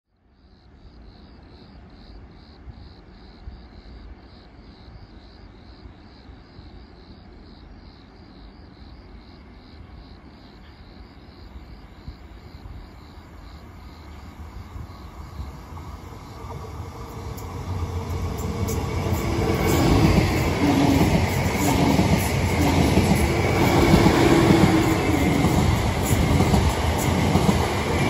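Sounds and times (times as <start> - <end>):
train approaching rumble: 9.5 - 28.0
train wheel noise: 13.3 - 28.0.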